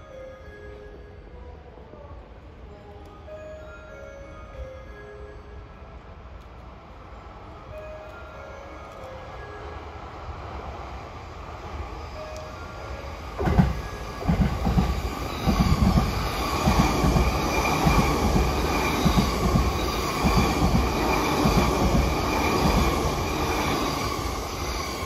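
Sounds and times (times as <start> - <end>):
train rail rumble: 6.0 - 25.0
high-pitched whine: 11.0 - 25.0.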